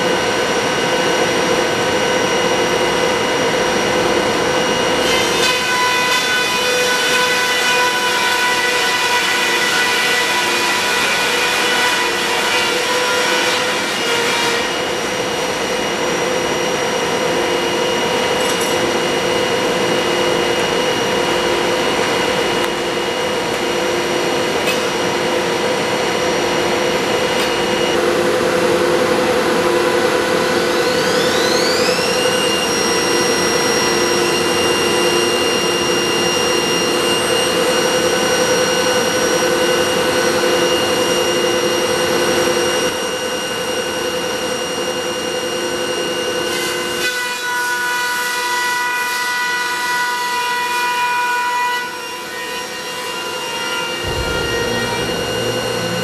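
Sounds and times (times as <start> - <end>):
planer machine humming and whining: 0.0 - 56.0
rising machine whine: 14.8 - 46.4, 53.4 - 56.0.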